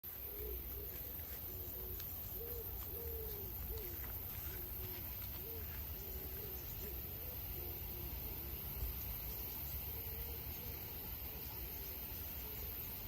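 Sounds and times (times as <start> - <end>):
birds hooting: 0.1 - 13.0.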